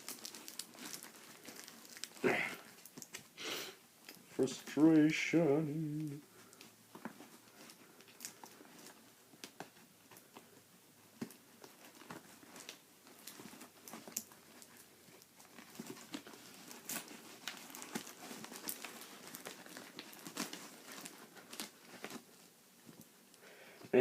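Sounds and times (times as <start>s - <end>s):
packaging being torn open: 0.0s - 3.3s, 15.5s - 22.2s.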